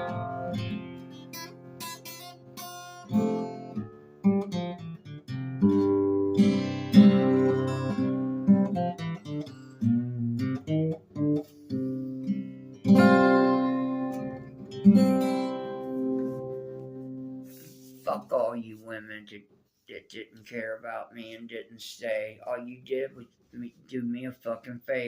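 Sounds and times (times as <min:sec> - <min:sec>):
acoustic guitar: 0:00.0 - 0:18.5.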